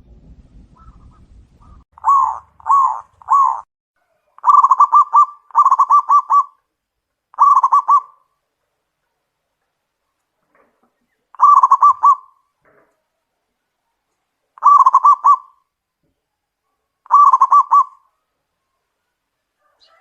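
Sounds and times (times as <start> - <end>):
dove cooing: 0.8 - 6.7, 7.3 - 8.3, 11.3 - 12.4, 14.6 - 15.7, 17.0 - 18.2.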